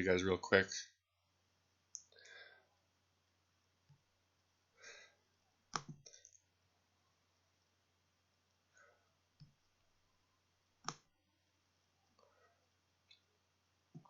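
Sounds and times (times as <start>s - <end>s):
soft breathy sounds: 2.0s - 2.9s, 4.6s - 5.4s, 8.6s - 9.3s, 12.1s - 13.3s
computer mouse clicks: 5.7s - 6.4s.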